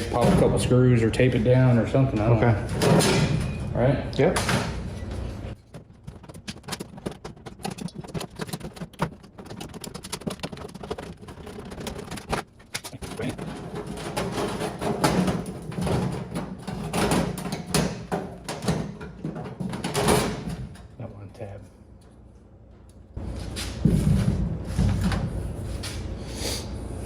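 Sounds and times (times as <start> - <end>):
sheet metal clicking and crinkling: 5.6 - 20.9.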